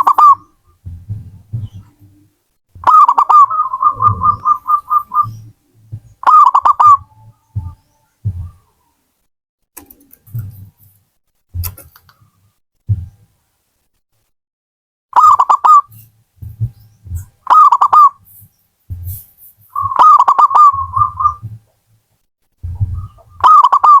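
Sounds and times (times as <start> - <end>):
dove cooing: 0.0 - 9.0, 17.1 - 18.3, 19.1 - 21.6, 22.6 - 24.0.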